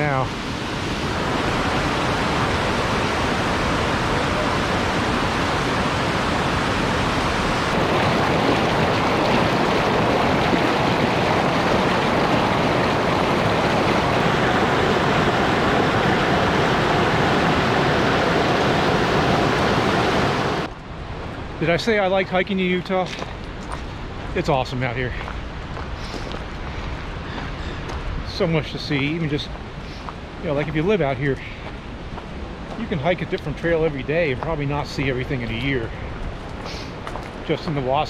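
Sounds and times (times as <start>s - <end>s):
creek rushing loudly: 0.0s - 20.7s.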